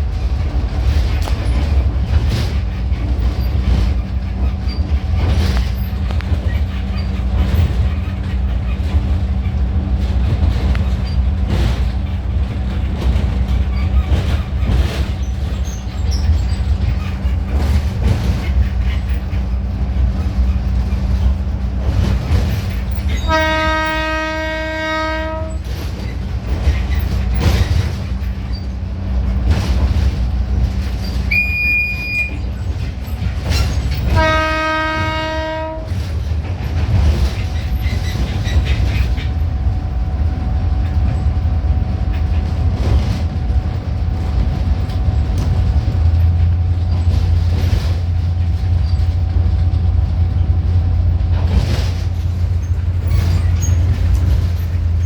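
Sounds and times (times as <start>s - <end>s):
train running: 0.0s - 55.0s
wheels clacking over rail joints: 0.0s - 55.0s
train horn blast: 23.1s - 25.7s, 34.0s - 36.1s.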